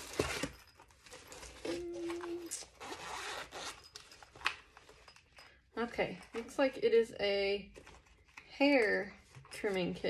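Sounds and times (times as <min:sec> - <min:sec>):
packaging rustling: 0:00.0 - 0:05.3
zipper rasping open: 0:01.6 - 0:04.0.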